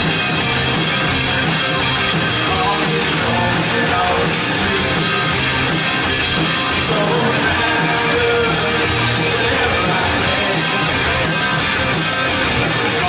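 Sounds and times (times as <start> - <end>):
band playing drums and guitar: 0.0 - 13.0
person singing: 2.4 - 5.6, 6.6 - 11.7.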